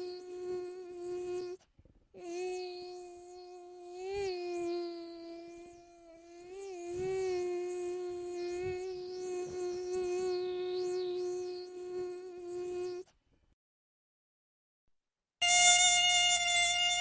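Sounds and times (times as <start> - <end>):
mosquito wings whining: 2.2 - 13.0, 15.4 - 17.0.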